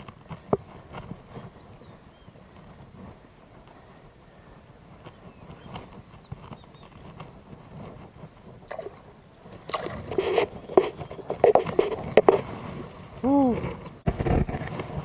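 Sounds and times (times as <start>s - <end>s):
water sloshing: 8.6s - 12.4s.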